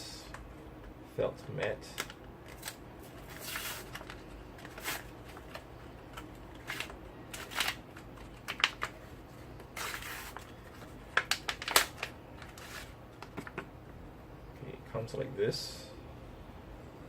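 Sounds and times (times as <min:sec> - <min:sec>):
packaging rustling and crinkling: 0:02.0 - 0:13.6.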